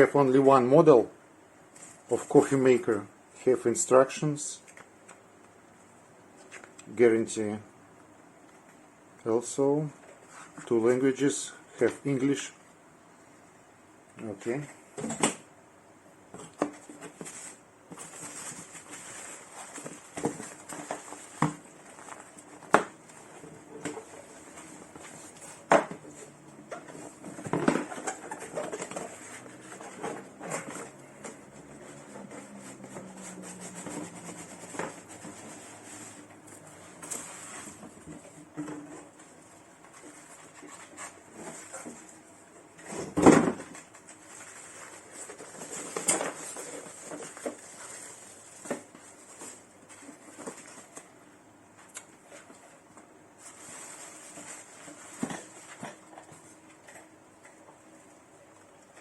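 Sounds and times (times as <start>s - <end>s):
cardboard and plastic rustling: 16.3s - 51.2s, 52.2s - 57.1s.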